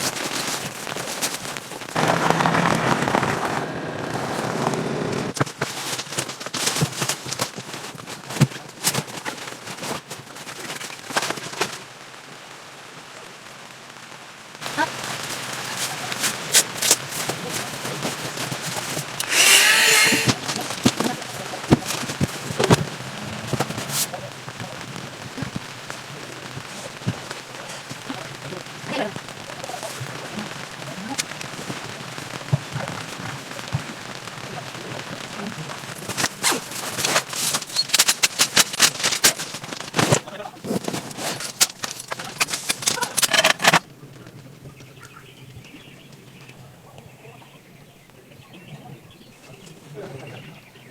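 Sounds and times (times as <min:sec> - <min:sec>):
raindrops tapping: 0:00.0 - 0:47.2
sharp crackles and rustles: 0:00.0 - 0:50.9
loud noisy burst: 0:01.9 - 0:05.4, 0:19.2 - 0:29.6.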